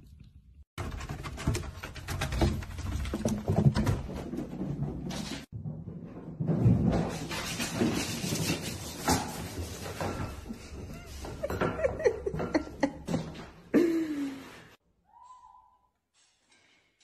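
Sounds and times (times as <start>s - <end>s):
person laughing: 10.9s - 14.5s.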